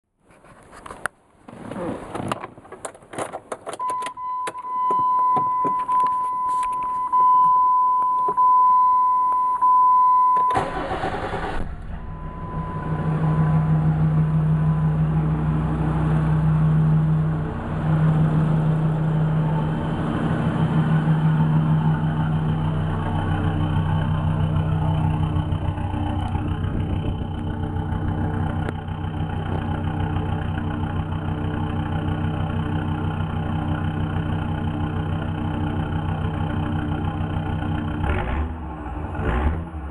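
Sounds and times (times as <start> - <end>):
clicks and key sounds: 2.8 - 9.6
diesel engine idling: 3.8 - 39.9
electronic warning tone: 11.9 - 14.0.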